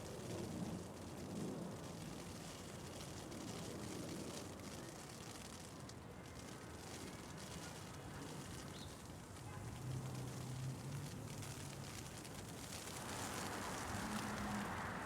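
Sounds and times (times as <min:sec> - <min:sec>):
distant city traffic: 0:09.3 - 0:15.0
hail pattering: 0:09.8 - 0:15.0
vehicle engine hum: 0:09.8 - 0:15.0.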